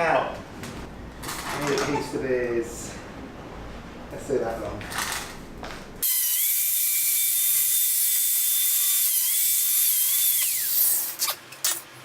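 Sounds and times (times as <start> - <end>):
rotary power tool whining: 6.0 - 11.2.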